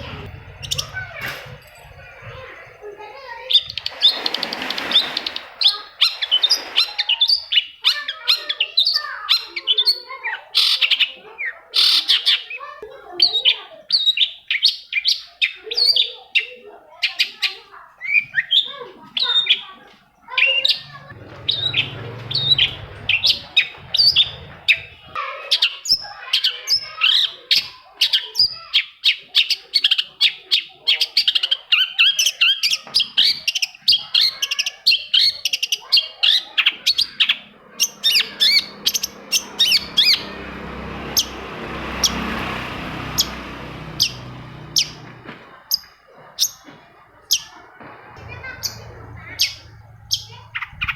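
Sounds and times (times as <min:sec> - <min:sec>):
bird chirping and chattering: 0:00.0 - 0:12.6, 0:20.3 - 0:27.0, 0:30.3 - 0:46.7, 0:48.2 - 0:50.9.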